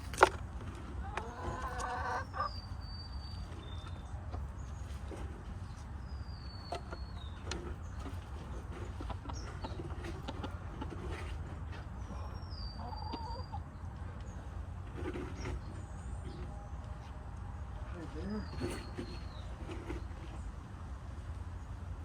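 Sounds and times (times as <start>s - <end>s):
hens clucking: 0.0s - 17.2s.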